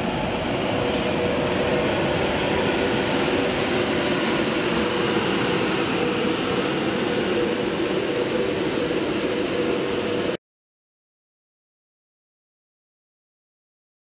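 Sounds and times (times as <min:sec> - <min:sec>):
electric train hum: 0:00.0 - 0:10.4
train wheels rumbling and hissing: 0:00.0 - 0:10.4.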